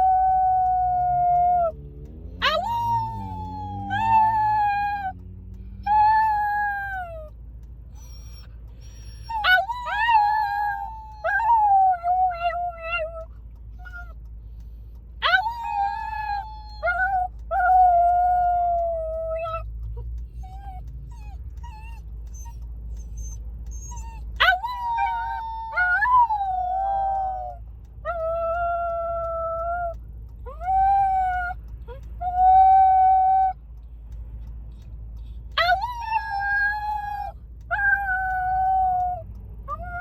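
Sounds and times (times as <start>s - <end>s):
dog howling: 2.4s - 5.0s, 9.1s - 13.2s, 15.2s - 19.6s, 23.2s - 29.9s.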